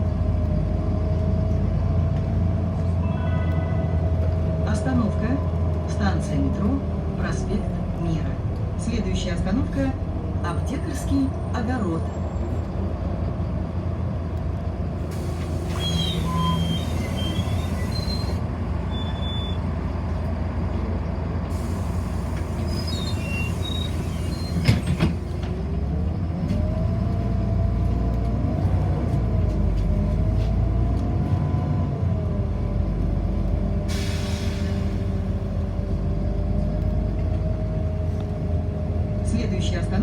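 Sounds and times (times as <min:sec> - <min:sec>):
bus cabin rumble: 0:00.0 - 0:40.0.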